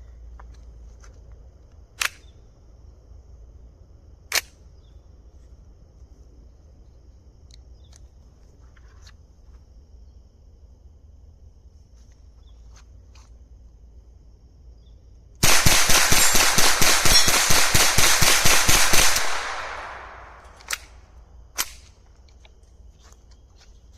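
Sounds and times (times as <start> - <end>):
sharp gun clicks: 2.0 - 2.3, 4.3 - 4.6, 15.4 - 21.0, 21.6 - 22.5
rapid gunshots: 15.4 - 20.6.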